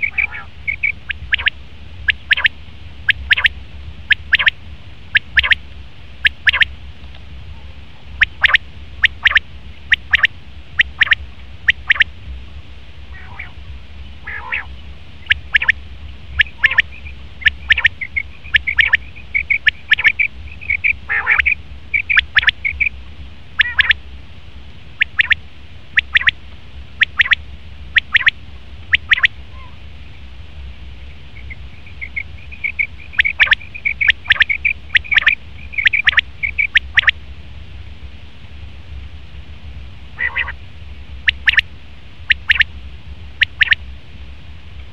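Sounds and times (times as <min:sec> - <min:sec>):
quail calling: 0:00.0 - 0:02.5, 0:03.1 - 0:03.5, 0:04.1 - 0:05.6, 0:06.2 - 0:06.7, 0:08.2 - 0:12.1, 0:13.1 - 0:13.6, 0:14.2 - 0:22.9, 0:23.6 - 0:24.0, 0:25.0 - 0:25.4, 0:26.0 - 0:26.4, 0:27.0 - 0:27.4, 0:28.0 - 0:29.8, 0:31.4 - 0:37.2, 0:40.2 - 0:40.6, 0:41.2 - 0:41.6, 0:42.3 - 0:42.7, 0:43.4 - 0:43.8
steady low hum: 0:00.0 - 0:44.9.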